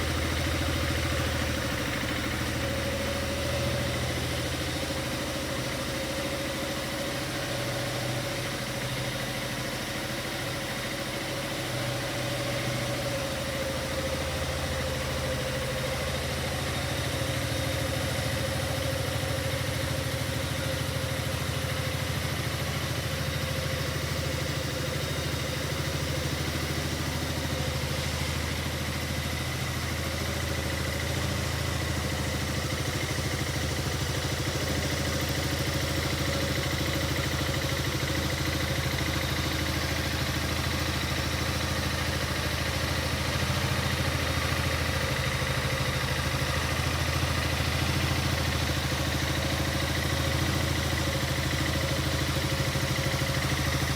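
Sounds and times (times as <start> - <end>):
scooter engine idling: 0.0 - 53.9.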